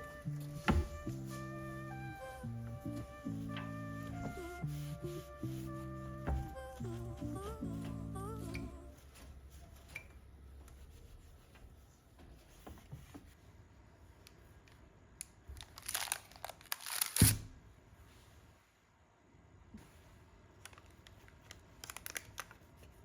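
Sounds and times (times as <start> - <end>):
background music: 0.0 - 9.0
sharp thump: 0.6 - 1.1
wrapping crinkling: 15.5 - 17.4, 20.6 - 23.0.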